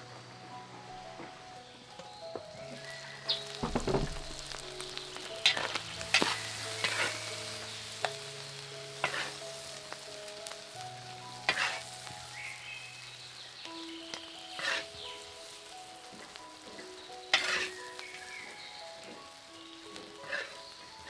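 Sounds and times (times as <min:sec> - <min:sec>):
food sizzling in a pan: 0:00.0 - 0:21.0
utensil scraping a pan: 0:03.3 - 0:08.2, 0:09.0 - 0:09.4, 0:11.5 - 0:11.9, 0:14.5 - 0:15.0, 0:17.3 - 0:17.9, 0:20.2 - 0:20.8.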